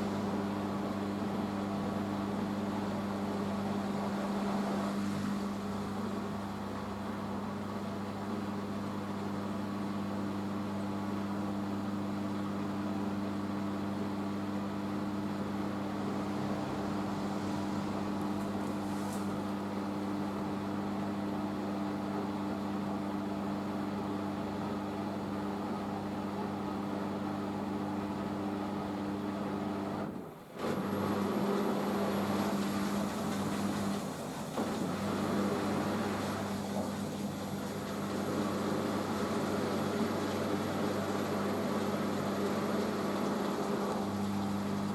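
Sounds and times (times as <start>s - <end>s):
washing machine drum spinning: 30.7s - 44.9s.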